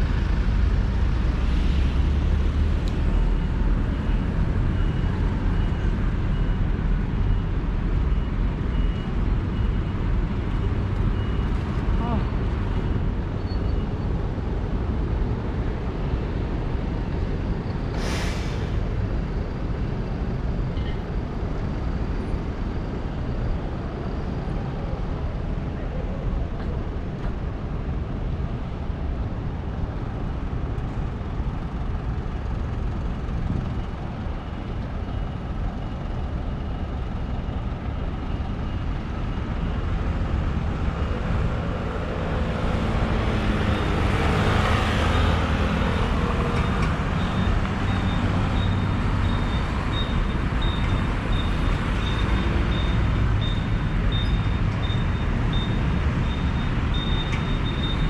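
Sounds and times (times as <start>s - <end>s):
street traffic: 0.0s - 58.0s
high-pitched beep: 47.2s - 58.0s.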